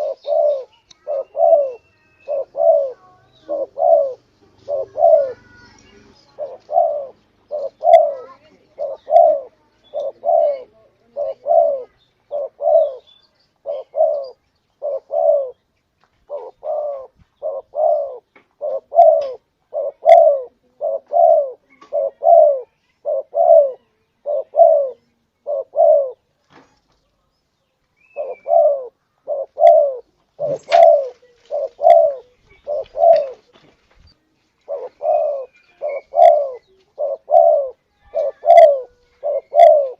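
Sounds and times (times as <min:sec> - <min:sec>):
dove cooing: 0:00.0 - 0:15.6, 0:16.3 - 0:26.3, 0:28.1 - 0:33.6, 0:34.6 - 0:39.9.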